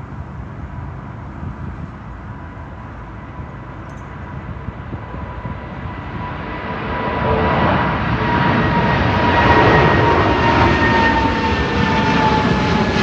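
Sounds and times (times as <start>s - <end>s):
jet engines rumbling and whining: 0.0s - 13.0s.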